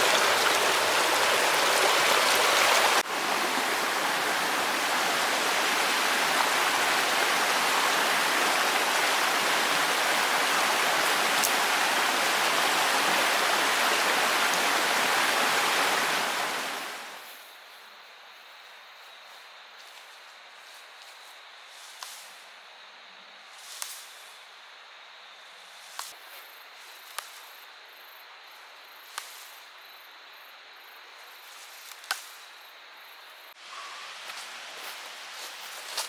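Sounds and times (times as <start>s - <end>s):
stream water flowing: 0.0s - 17.2s.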